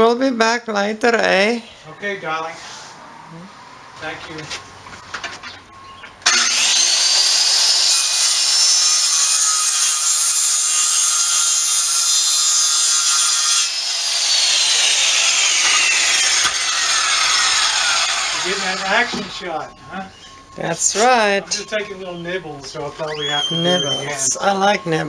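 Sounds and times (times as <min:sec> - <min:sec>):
circular saw cutting board: 0:06.2 - 0:19.4.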